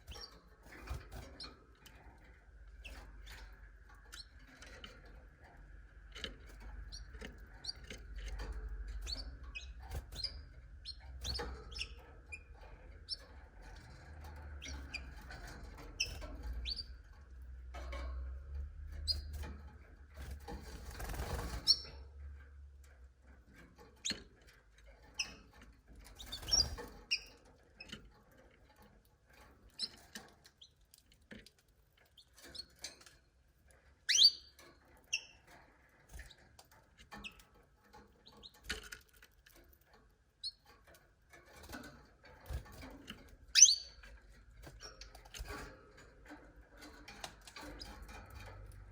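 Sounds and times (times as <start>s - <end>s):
canaries chirping: 0.0s - 22.2s, 23.5s - 28.4s, 29.3s - 31.4s, 32.0s - 39.0s, 40.4s - 48.9s
clicks and rustles: 34.6s - 48.9s.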